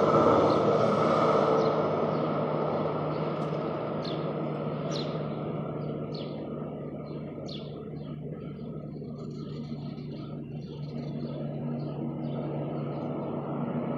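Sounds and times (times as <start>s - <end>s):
constant low hum: 0.0s - 13.9s
traffic rumble: 0.0s - 13.9s
small birds chirping: 3.1s - 13.5s.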